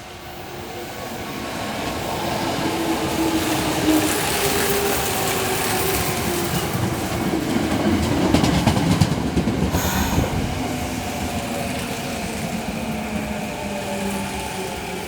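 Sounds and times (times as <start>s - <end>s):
train running noise: 0.0s - 15.0s
train motor hum: 9.7s - 11.6s.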